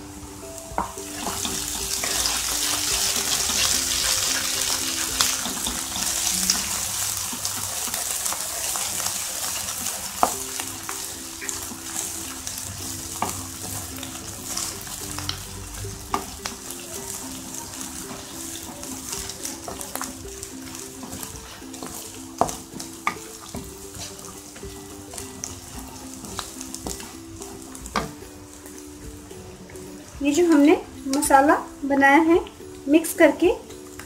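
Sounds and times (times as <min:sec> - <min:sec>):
onions sizzling in hot oil: 0:00.0 - 0:34.0
wooden spatula stirring and scraping: 0:00.7 - 0:31.4
spatula knocking on pan: 0:17.8 - 0:27.1, 0:27.7 - 0:28.2.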